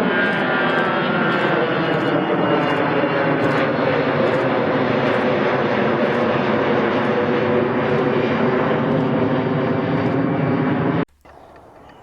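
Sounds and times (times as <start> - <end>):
jet engines at takeoff power: 0.0 - 12.0.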